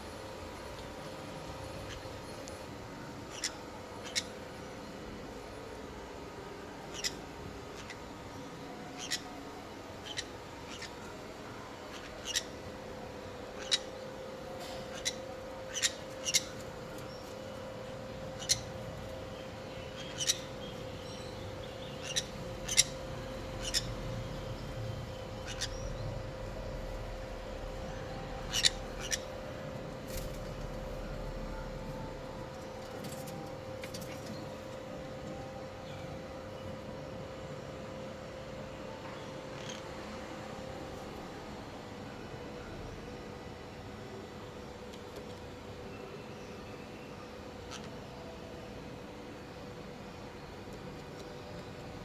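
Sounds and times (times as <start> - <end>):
steady hum: 0.0 - 52.0
small birds chirping: 3.3 - 4.5, 6.8 - 11.2, 11.9 - 12.7, 13.4 - 31.7.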